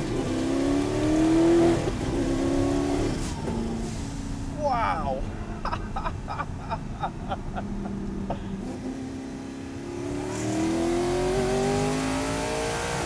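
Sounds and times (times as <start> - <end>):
car engine accelerating hard: 0.0 - 3.9, 7.2 - 13.0.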